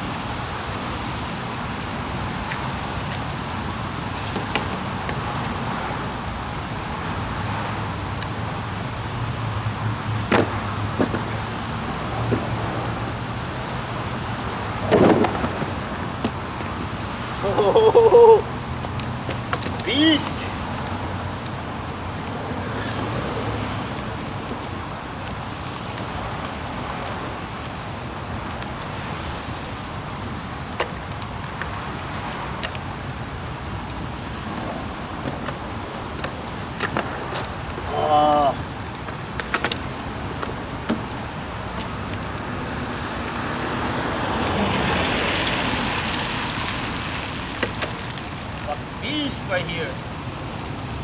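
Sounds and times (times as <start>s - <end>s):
skateboard wheels rolling: 0.0s - 51.0s
skateboard knocks: 1.8s - 7.8s, 9.8s - 27.0s, 30.1s - 46.3s.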